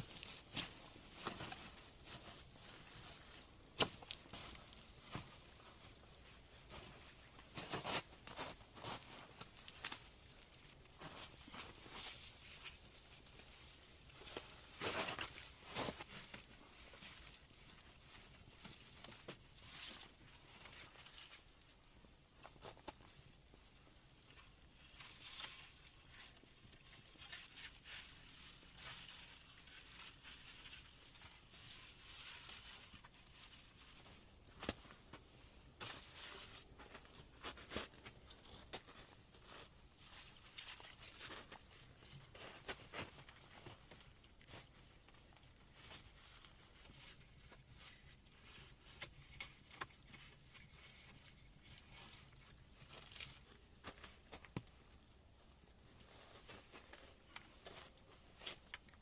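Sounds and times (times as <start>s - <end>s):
faint rustling and crinkling: 0.0s - 59.0s.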